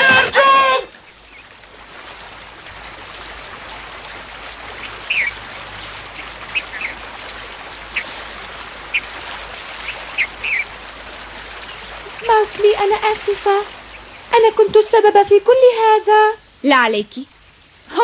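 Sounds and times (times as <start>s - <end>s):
flowing water rushing: 0.0s - 18.0s
bird chirps: 4.8s - 5.4s, 9.8s - 10.7s.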